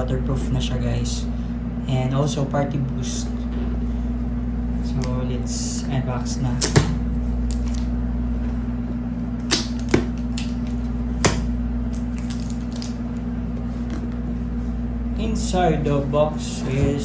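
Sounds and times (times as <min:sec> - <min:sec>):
steady low hum: 0:00.0 - 0:17.0
cardboard packaging clicks and snaps: 0:09.4 - 0:13.2.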